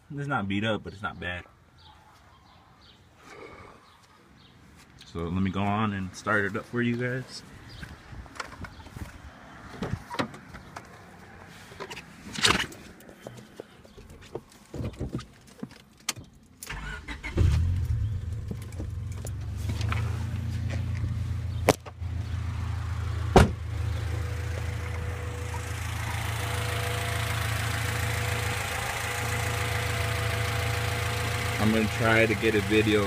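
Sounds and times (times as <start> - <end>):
car engine starting and idling: 16.6 - 33.0.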